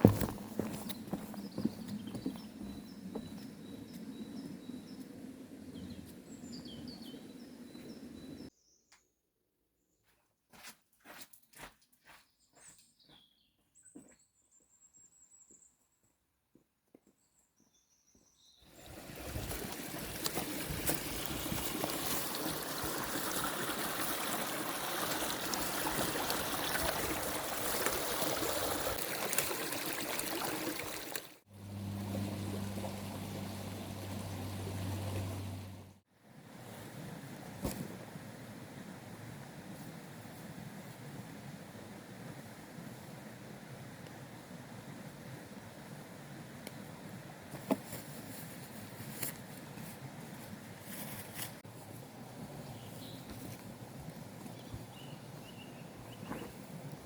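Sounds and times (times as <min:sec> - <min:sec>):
running water: 0:18.7 - 0:36.0.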